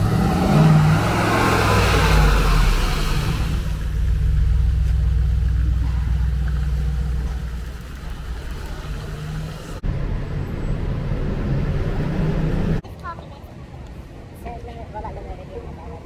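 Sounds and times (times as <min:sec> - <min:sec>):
car engine drone: 0:00.0 - 0:12.8.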